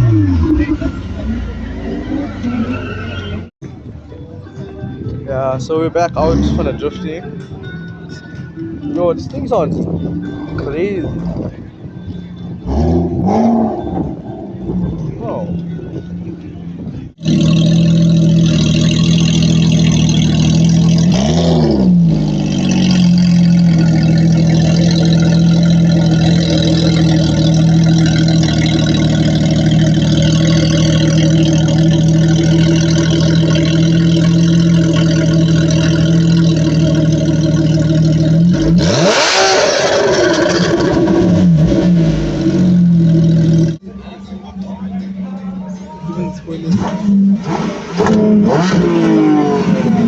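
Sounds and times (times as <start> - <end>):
car engine at high revs: 17.2 - 43.8, 46.6 - 50.0.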